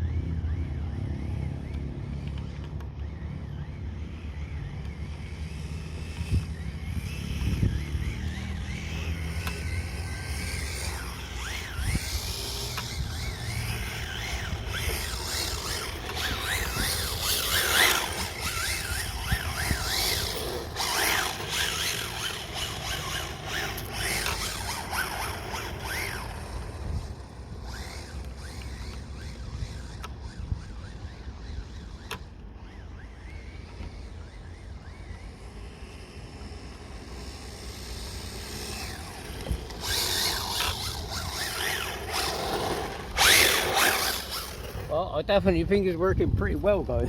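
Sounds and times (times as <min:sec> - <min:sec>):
radio-controlled car motor whining: 0:00.0 - 0:45.0
wind buffeting microphone: 0:06.0 - 0:32.0, 0:37.6 - 0:47.0.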